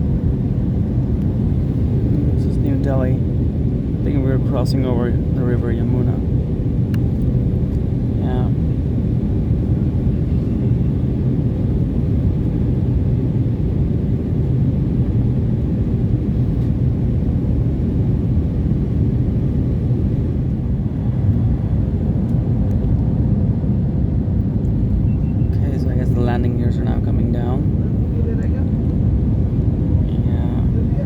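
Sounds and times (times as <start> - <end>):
airplane cabin engine rumble: 0.0 - 31.0.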